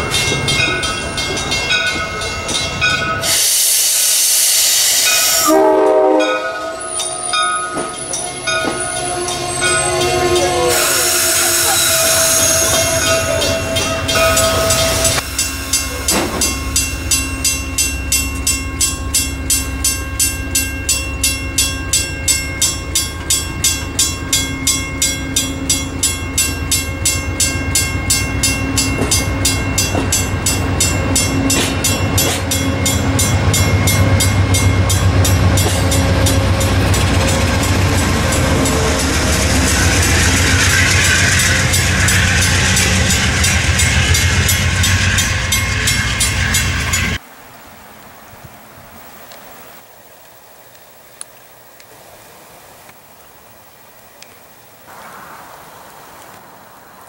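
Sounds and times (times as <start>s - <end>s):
train horn: 5.2s - 17.2s, 31.1s - 47.2s
train wheels clattering over joints: 6.9s - 18.9s, 21.6s - 47.2s.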